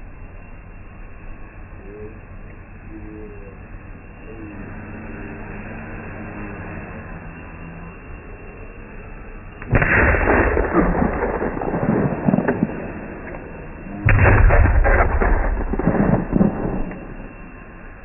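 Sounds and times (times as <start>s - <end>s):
firework bursts: 9.6s - 17.8s
firework crackling: 9.6s - 17.9s.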